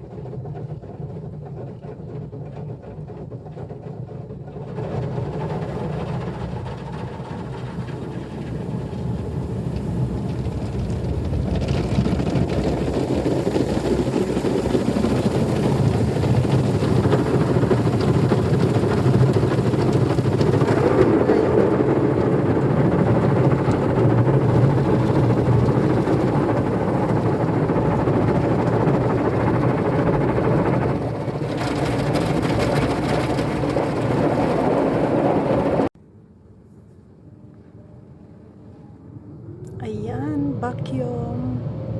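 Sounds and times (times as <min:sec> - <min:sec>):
brushes and water rushing: 0:05.3 - 0:35.9.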